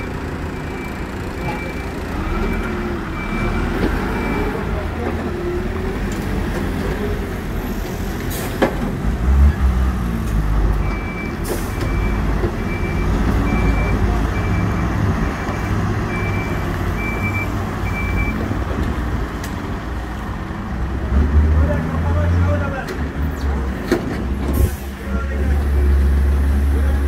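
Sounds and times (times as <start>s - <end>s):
reversing alarm beeping: 0.0s - 4.6s, 10.8s - 18.4s
diesel engine running: 0.0s - 27.0s.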